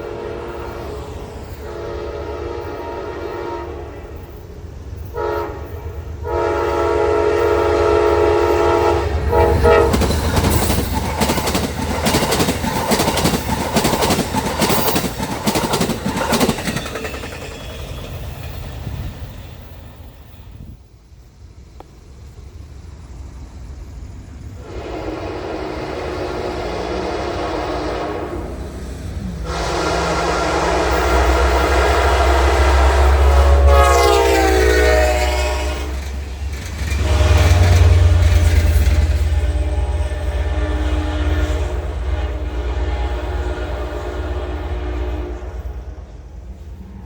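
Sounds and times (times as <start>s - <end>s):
locomotive air horn blasts: 0.0s - 4.2s, 5.1s - 10.2s, 24.6s - 36.2s, 36.9s - 46.2s
low train rumble: 0.0s - 47.0s
train wheels clicking over rail joints: 7.4s - 20.4s, 28.5s - 42.0s.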